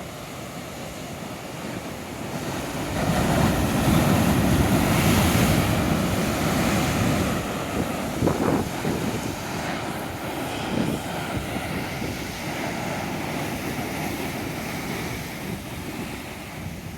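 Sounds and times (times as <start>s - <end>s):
waves breaking: 0.0s - 16.9s
wind buffeting microphone: 2.3s - 16.9s.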